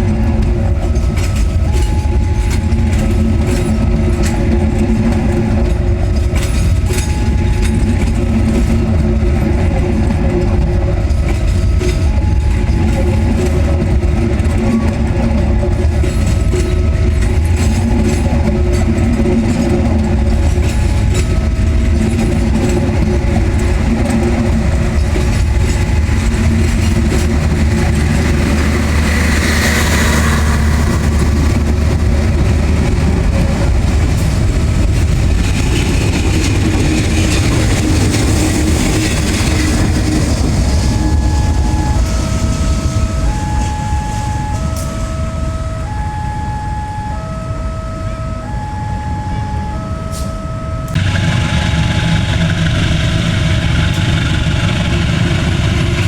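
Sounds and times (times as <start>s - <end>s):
diesel train passing: 0.0s - 56.0s
electronic warning tones: 0.8s - 6.0s, 39.4s - 53.3s.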